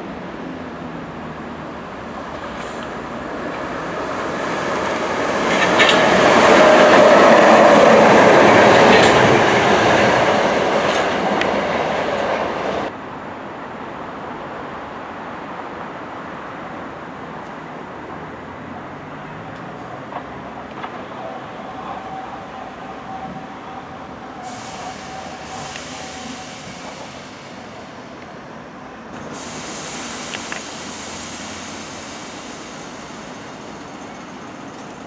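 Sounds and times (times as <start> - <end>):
electric train passing at speed: 0.0 - 35.0
train rumbling into platform: 0.0 - 35.0
wheels clicking over rail joints: 5.3 - 7.2.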